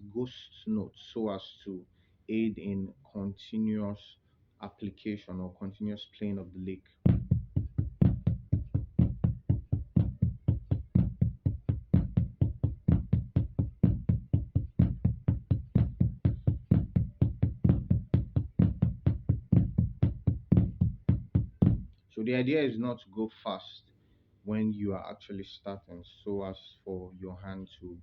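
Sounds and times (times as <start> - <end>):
drum played with sticks: 7.1 - 21.9.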